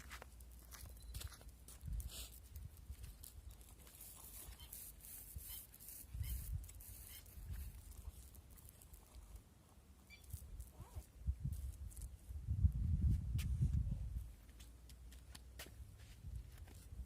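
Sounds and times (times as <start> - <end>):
wind buffeting microphone: 11.2 - 14.3.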